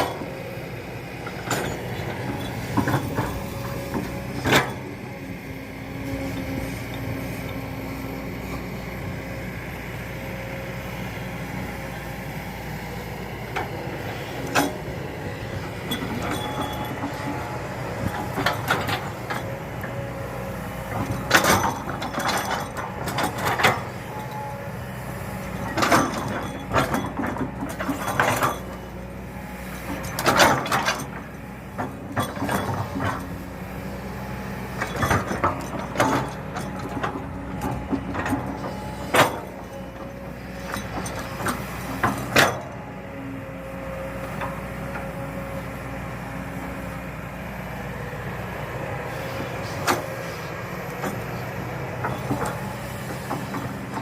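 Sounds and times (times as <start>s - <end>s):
excavator diesel engine running: 0.0s - 54.0s
loud clanks and knocks: 1.3s - 5.0s.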